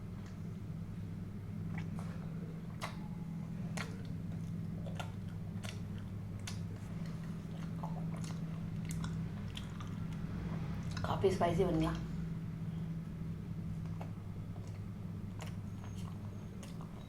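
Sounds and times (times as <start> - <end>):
low hum: 0.0 - 17.0
chewing food: 1.5 - 11.1, 13.5 - 17.0
wet mouth clicks: 1.7 - 2.1, 2.8 - 3.1, 3.8 - 10.2.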